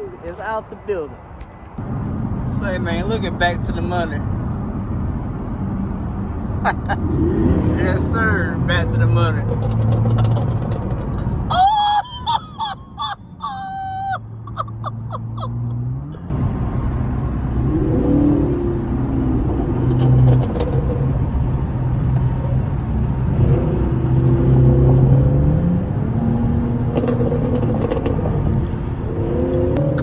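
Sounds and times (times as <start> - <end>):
car engine revving: 6.5 - 11.4, 14.2 - 30.0
exhaust crackles and pops: 8.8 - 11.5, 19.2 - 25.0, 26.8 - 28.7.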